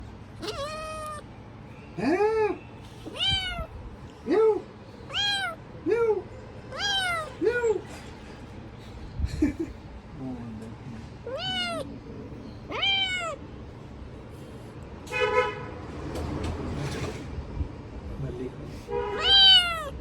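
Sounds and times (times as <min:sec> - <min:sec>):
cat meowing: 0:00.4 - 0:01.3, 0:03.0 - 0:03.9, 0:05.1 - 0:05.6, 0:06.7 - 0:07.8, 0:11.2 - 0:12.0, 0:12.6 - 0:13.4, 0:19.1 - 0:20.0.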